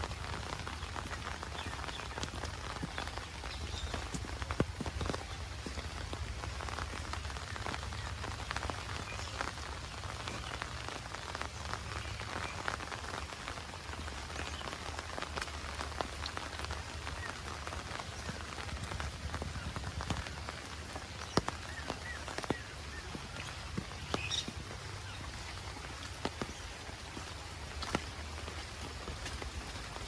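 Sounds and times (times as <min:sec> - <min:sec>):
heavy rain with drop taps: 0:00.0 - 0:30.0.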